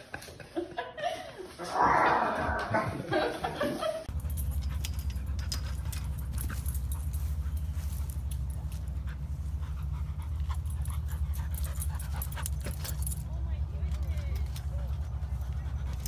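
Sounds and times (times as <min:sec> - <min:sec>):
steady low rumble: 0:04.1 - 0:16.0
dog panting: 0:04.2 - 0:13.2, 0:14.4 - 0:16.0.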